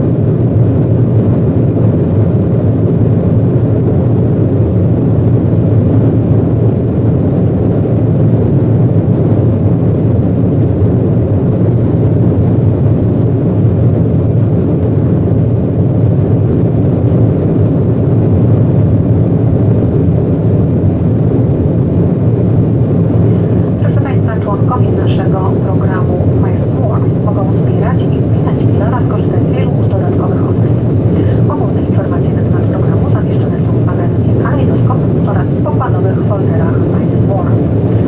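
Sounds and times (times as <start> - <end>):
jet engine drone in cabin: 0.0 - 38.0
rushing airflow: 0.0 - 38.0.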